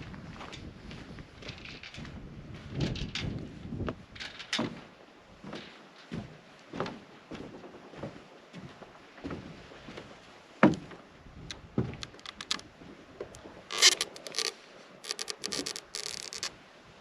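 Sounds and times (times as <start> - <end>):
handling knocks and clicks: 11.5 - 12.6, 13.7 - 16.5
rustling: 12.0 - 12.6, 13.7 - 16.5.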